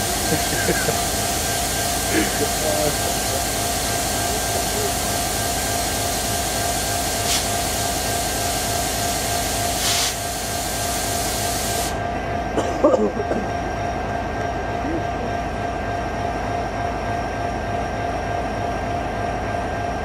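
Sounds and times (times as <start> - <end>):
train rumbling: 0.0 - 9.9
brief hissing bursts: 1.5 - 12.0.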